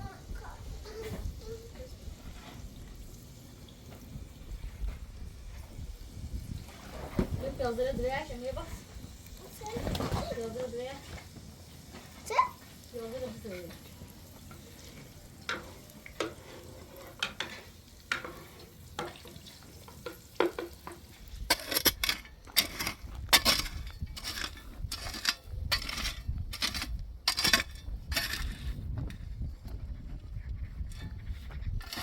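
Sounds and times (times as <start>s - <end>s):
utensil scraping cooking pot: 13.3s - 29.4s, 30.2s - 32.0s.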